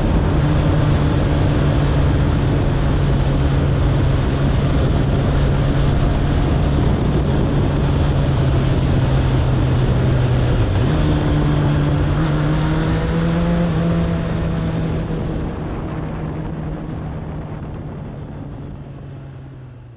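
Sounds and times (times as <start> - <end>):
motorcycle engine cruising: 0.0 - 19.9
road and wind noise: 0.0 - 19.9.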